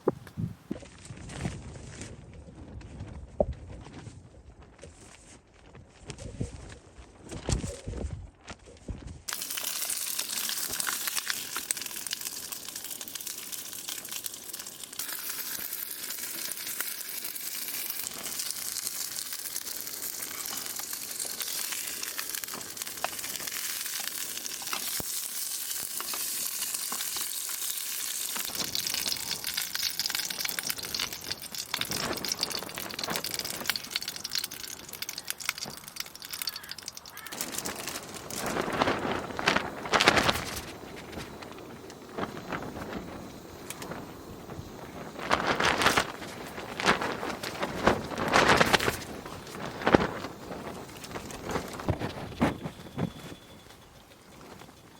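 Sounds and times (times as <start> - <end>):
food sizzling in frying pan: 9.3 - 52.3.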